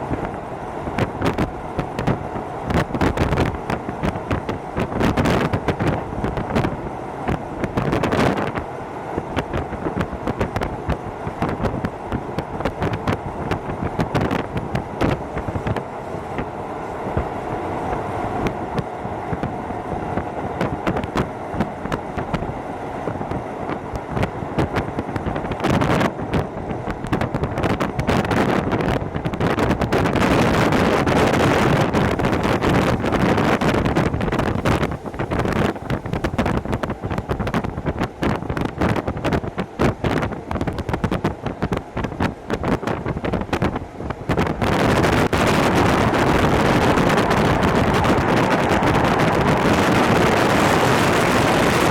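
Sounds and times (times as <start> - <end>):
train running noise: 0.0 - 51.9
wheels clattering over track: 30.2 - 38.6.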